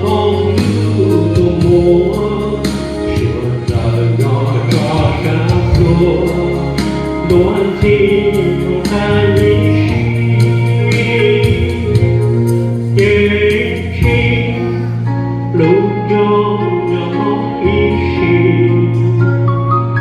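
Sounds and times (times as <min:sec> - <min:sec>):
group singing a hymn: 0:00.0 - 0:15.0
instrumental backing: 0:00.0 - 0:20.0.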